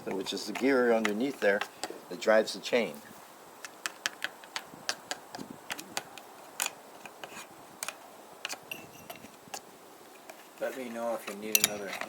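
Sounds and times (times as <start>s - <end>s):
tools and metal parts clicking: 11.5s - 12.0s.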